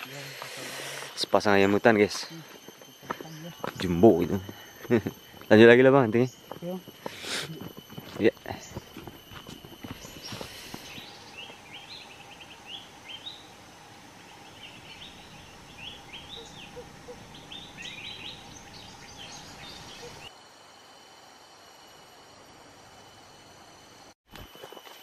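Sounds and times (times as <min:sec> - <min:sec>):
faint steady high hum: 0:00.0 - 0:25.0
small birds chirping: 0:09.8 - 0:20.3.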